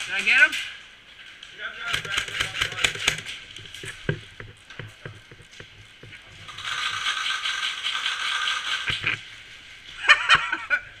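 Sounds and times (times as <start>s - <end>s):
airsoft gun mechanism clicking: 1.9s - 3.9s
mechanical rattling whir: 6.5s - 9.2s.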